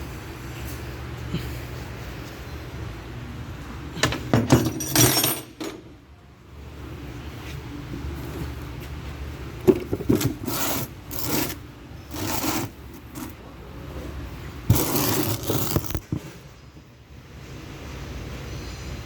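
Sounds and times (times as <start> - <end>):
metal tool scraping and clinking: 4.6 - 5.6, 10.2 - 13.3.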